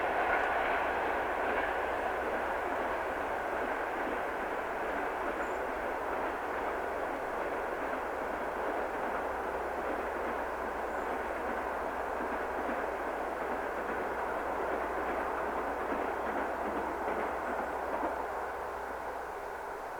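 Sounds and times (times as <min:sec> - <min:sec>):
train wheels on rails: 0:00.0 - 0:19.9.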